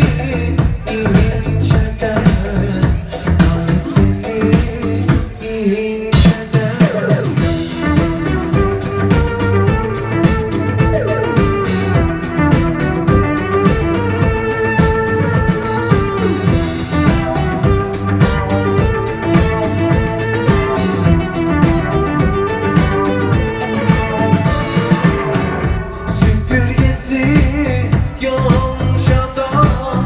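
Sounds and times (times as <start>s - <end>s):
bass: 0.0s - 30.0s
drum kit beat: 0.0s - 30.0s
plucked-string lead melody: 7.7s - 26.1s.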